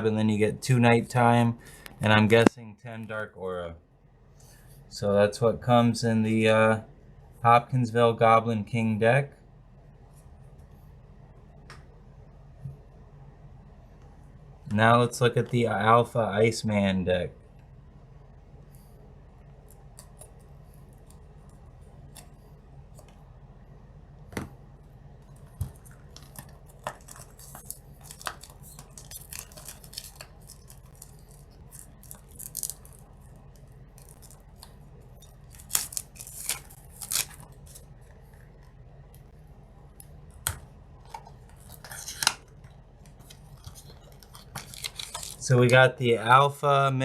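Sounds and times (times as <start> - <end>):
cardboard and plastic wrap rustling: 25.4 - 38.6, 41.0 - 45.5.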